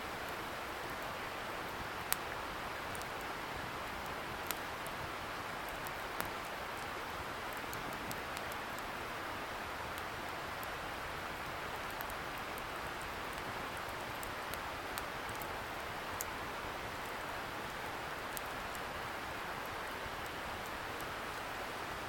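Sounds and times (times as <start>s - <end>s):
bonfire crackling and popping: 1.9s - 8.9s, 9.9s - 18.9s.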